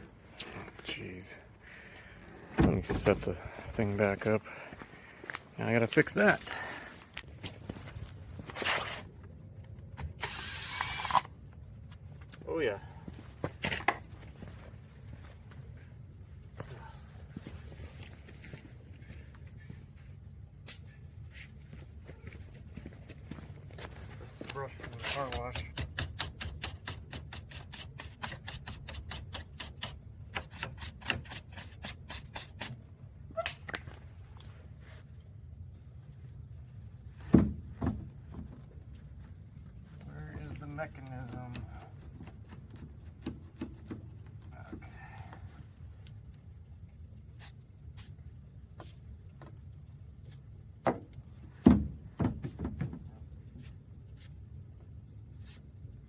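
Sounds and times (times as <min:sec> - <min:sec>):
stiff brush scrubbing: 0:23.8 - 0:32.8, 0:47.3 - 0:48.2
low steady rumble: 0:32.7 - 0:52.2.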